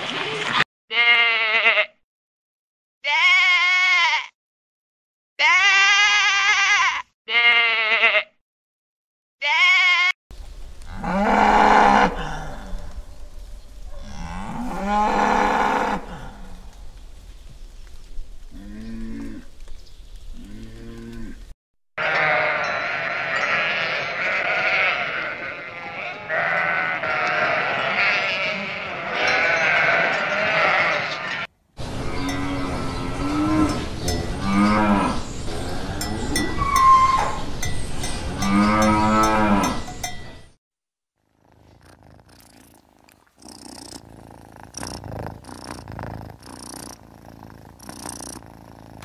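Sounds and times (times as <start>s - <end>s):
sheep bleating: 0.9s - 2.0s, 3.0s - 4.4s, 5.4s - 8.4s, 9.4s - 10.2s, 22.0s - 31.5s
cattle lowing: 13.9s - 16.8s, 24.4s - 37.5s, 41.3s - 49.0s
flock of sheep bleating together: 22.0s - 31.5s.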